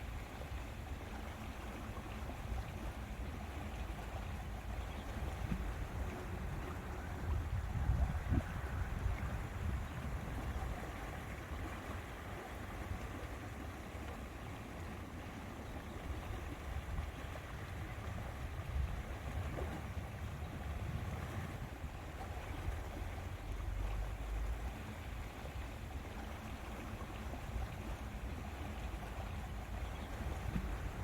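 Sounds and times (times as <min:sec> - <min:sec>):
water lapping at shore: 0:00.0 - 0:31.0
wind rumbling: 0:05.3 - 0:12.2.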